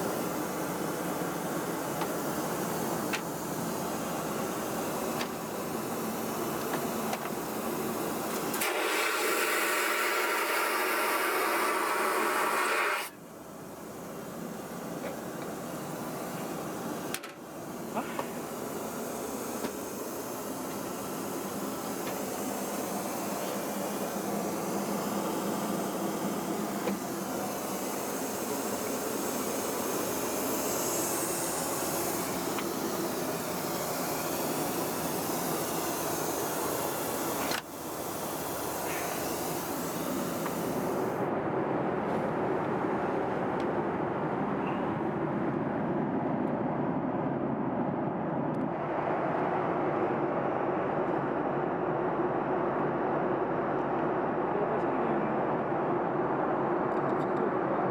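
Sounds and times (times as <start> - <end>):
airplane cabin airflow and engine: 0.0 - 57.9.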